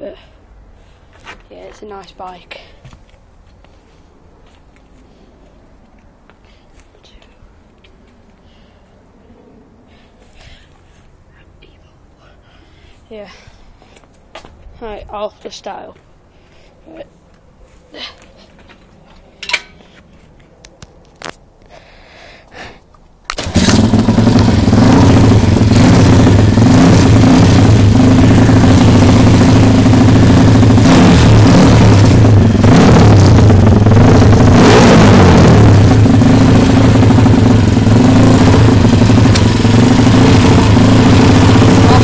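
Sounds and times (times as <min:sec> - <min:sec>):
motorbike engine running: 0:23.4 - 0:42.0.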